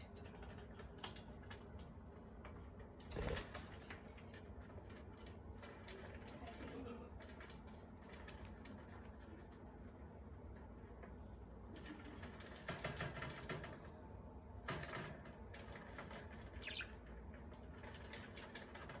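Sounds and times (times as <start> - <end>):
birds fluttering wings: 3.0 - 9.1.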